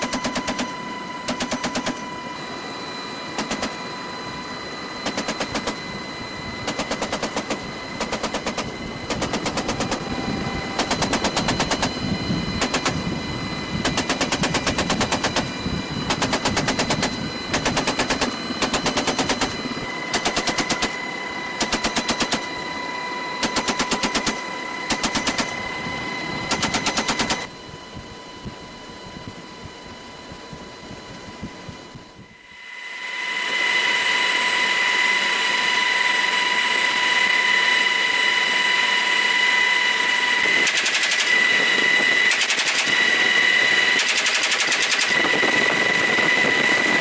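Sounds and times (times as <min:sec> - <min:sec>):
helicopter running whine: 0:00.0 - 0:47.0
machine gun firing bursts: 0:16.1 - 0:20.8, 0:40.6 - 0:41.4, 0:42.3 - 0:43.0, 0:43.9 - 0:45.2.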